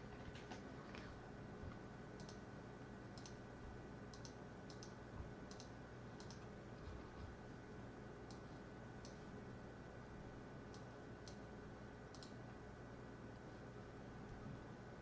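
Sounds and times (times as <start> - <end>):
faint steady hum: 0.0 - 15.0
computer mouse clicking: 2.2 - 2.4, 3.2 - 3.4, 4.1 - 6.5, 10.7 - 11.5, 12.1 - 12.4.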